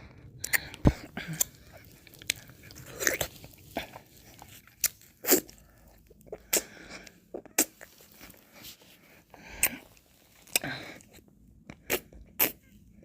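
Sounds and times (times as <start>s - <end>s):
mouth licks and lip smacks: 0.4s - 5.5s.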